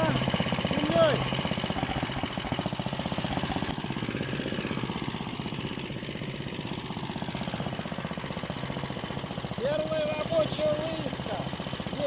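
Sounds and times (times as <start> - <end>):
single-cylinder engine puttering: 0.0 - 12.0.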